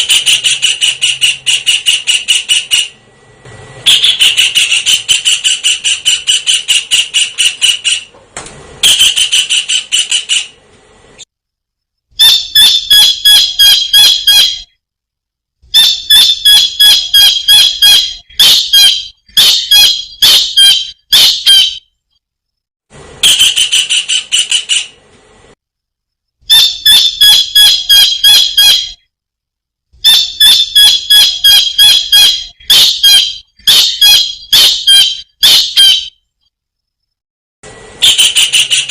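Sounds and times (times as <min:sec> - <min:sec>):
kingfisher high sharp calls: 0:38.0 - 0:38.9.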